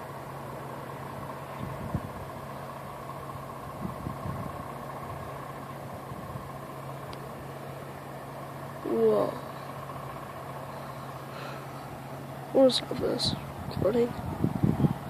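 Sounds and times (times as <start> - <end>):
fire truck engine idling: 0.0 - 15.0.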